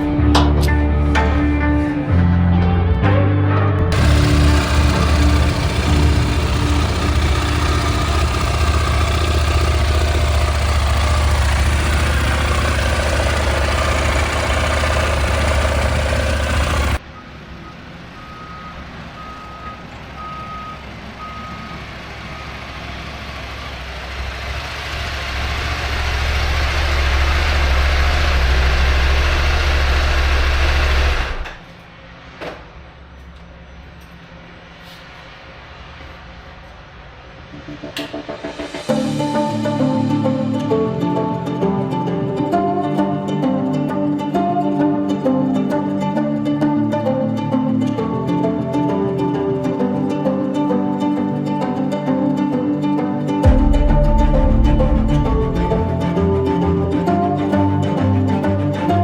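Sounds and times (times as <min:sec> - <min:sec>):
vehicle engine humming: 0:03.9 - 0:31.8, 0:37.5 - 0:45.0, 0:52.5 - 0:59.0.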